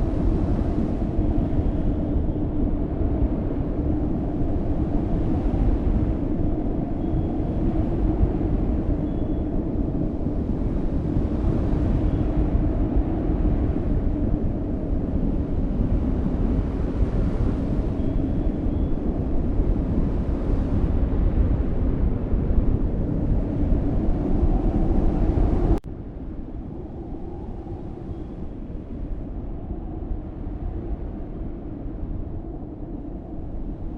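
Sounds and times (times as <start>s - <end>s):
strong wind buffeting microphone: 0.0s - 33.9s.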